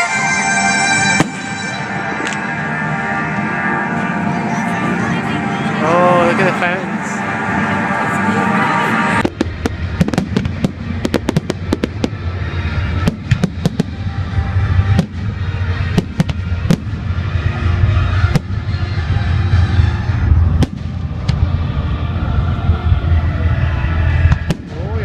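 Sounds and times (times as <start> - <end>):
music soundtrack: 0.0 - 25.0
low rumble: 0.8 - 25.0
fireworks cracking and popping: 9.2 - 12.2, 13.0 - 17.0, 20.5 - 21.5.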